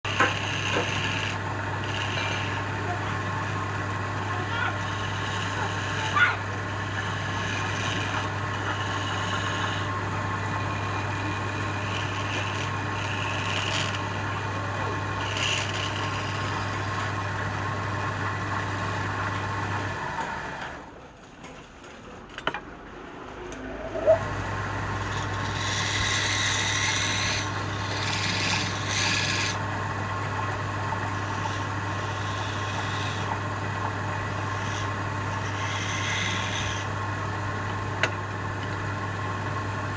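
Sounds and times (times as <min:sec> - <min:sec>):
turning tool scraping wood: 0:00.0 - 0:17.6, 0:24.8 - 0:29.7, 0:30.4 - 0:37.2
lathe motor humming: 0:00.0 - 0:20.8, 0:23.5 - 0:39.9.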